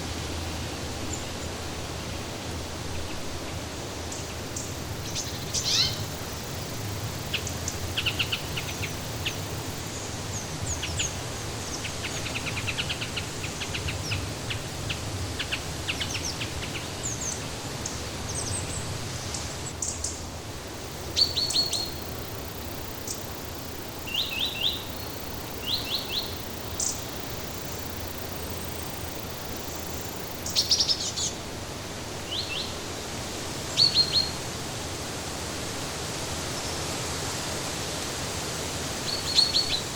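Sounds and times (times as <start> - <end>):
songbirds chirping: 3.1 - 31.6, 32.2 - 32.8.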